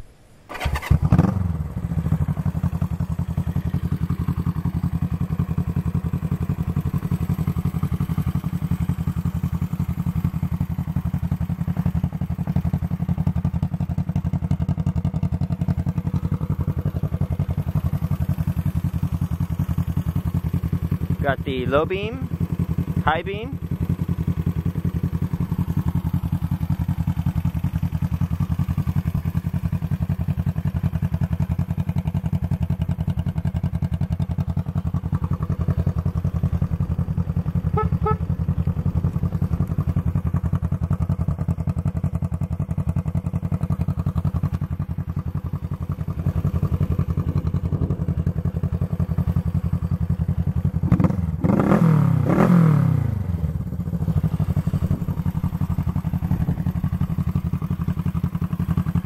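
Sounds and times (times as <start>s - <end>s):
engine revving: 0.5s - 1.8s, 50.8s - 53.4s
motorcycle engine idling: 0.5s - 59.0s.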